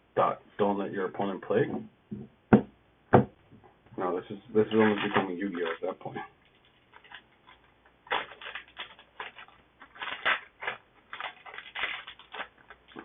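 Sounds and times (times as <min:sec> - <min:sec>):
foil wrapper crinkling: 0:04.6 - 0:13.0.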